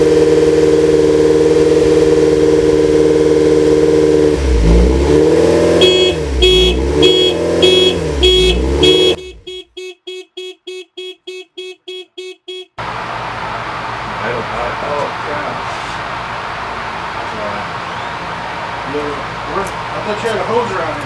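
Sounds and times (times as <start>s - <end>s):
car engine revving: 0.0s - 21.0s
sharp electronic beeping: 5.8s - 12.8s.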